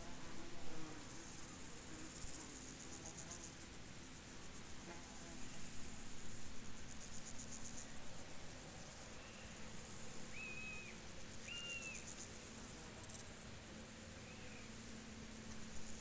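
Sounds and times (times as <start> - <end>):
crickets chirping: 5.4 - 16.0.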